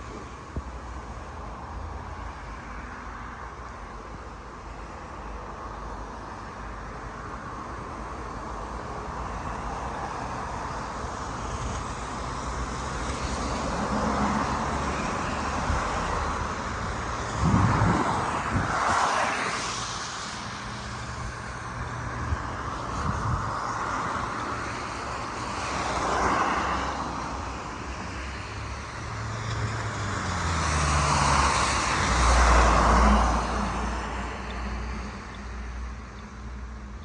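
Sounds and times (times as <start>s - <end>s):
traffic noise: 0.0s - 37.0s
tyre hiss on wet road: 7.4s - 36.6s.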